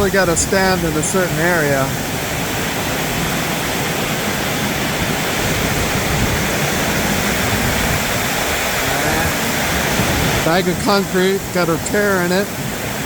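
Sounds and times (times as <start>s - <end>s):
heavy rain on a metal roof: 0.0s - 13.0s.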